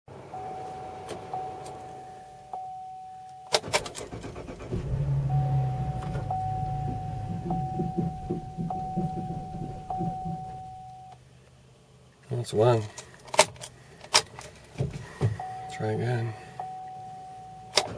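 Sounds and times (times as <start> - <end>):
car engine running rough: 4.1 - 11.0
warning chime: 4.7 - 11.2, 15.4 - 17.7.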